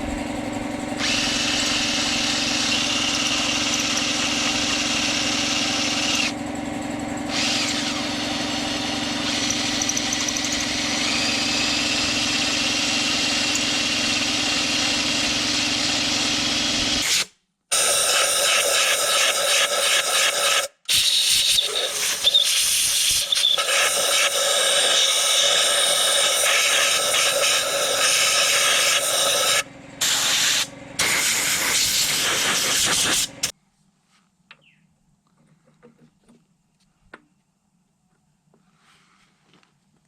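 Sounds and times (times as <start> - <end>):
machine hissing loudly: 17.7 - 33.5.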